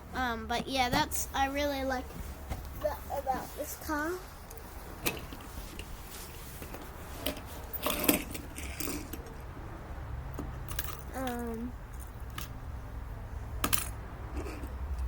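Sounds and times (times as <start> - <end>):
metal toy cars clinking: 7.2 - 9.4, 10.6 - 12.5, 13.6 - 15.0.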